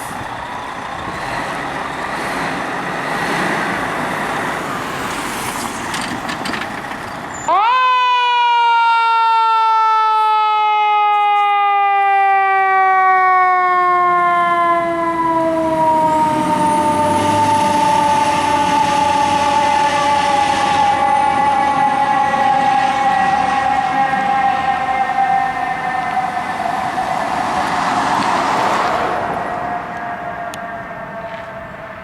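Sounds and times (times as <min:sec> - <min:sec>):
road noise: 0:00.0 - 0:32.0
truck engine rumble: 0:00.0 - 0:32.0
siren winding down: 0:07.3 - 0:31.8.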